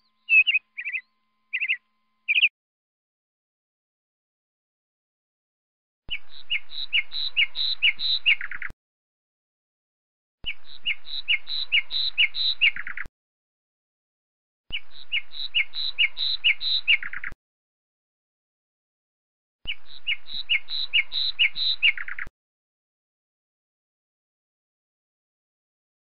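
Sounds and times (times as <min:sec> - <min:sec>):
lapwing calling: 0:00.0 - 0:02.5.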